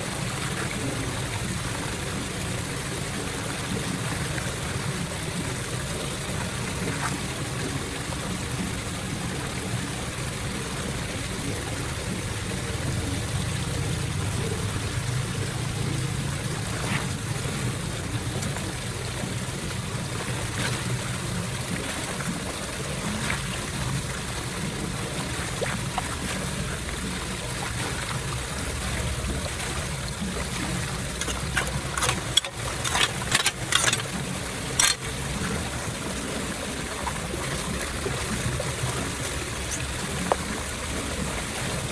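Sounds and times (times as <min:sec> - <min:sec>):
water running into storm drain: 0:00.0 - 0:41.9
sharp clicks and knocks: 0:31.2 - 0:34.2, 0:34.8 - 0:35.0.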